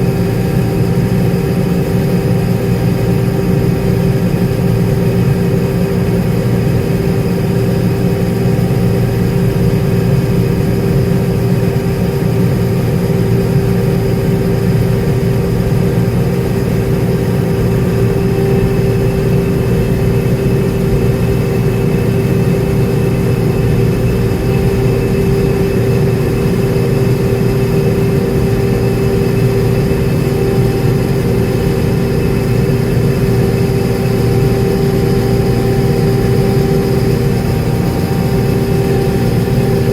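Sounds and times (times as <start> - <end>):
heavy diesel engine droning: 13.2 - 39.9.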